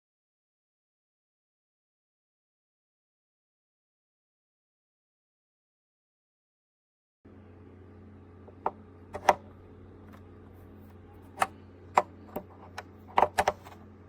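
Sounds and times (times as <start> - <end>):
steady low hum: 7.3 - 14.0
sharp clicks and knocks: 8.5 - 9.5, 11.3 - 13.8.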